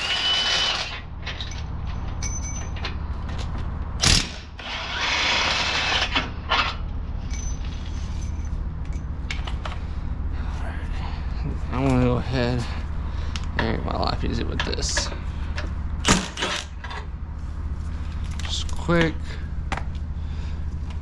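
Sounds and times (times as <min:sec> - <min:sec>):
power tool spinning bolts: 0:00.0 - 0:01.6, 0:04.0 - 0:06.2, 0:16.1 - 0:16.8
steady low hum: 0:00.0 - 0:21.0.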